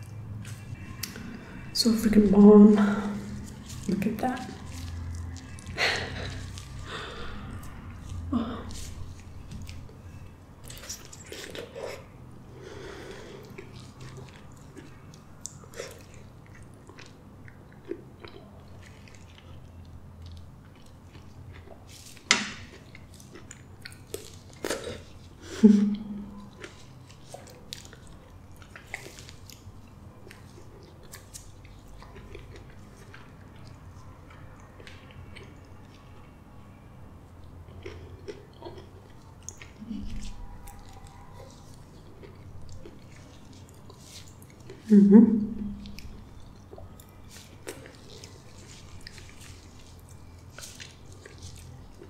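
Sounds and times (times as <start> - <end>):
wet chewing of soft fruit: 0.0 - 52.0
person humming: 44.9 - 45.9.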